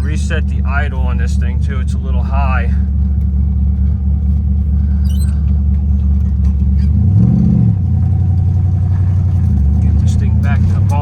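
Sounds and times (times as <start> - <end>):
car engine running: 0.0 - 11.0
engine revving: 5.7 - 11.0.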